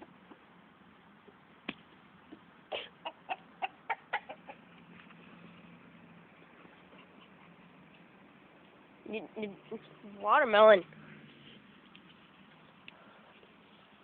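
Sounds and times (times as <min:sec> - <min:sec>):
chickens clucking: 0:02.2 - 0:05.5.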